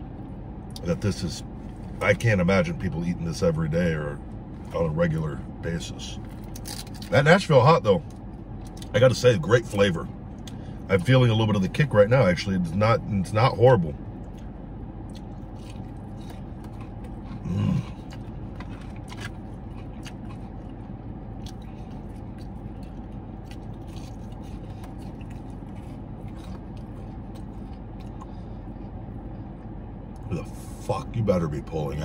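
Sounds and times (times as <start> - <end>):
low car interior hum: 0.0 - 32.0
chewing crispy chicken: 6.2 - 7.2, 8.0 - 11.9, 14.0 - 30.4.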